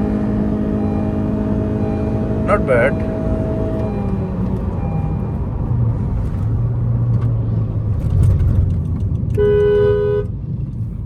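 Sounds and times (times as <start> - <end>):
car engine and road noise: 0.0 - 11.0
two-note car horn: 9.4 - 10.3.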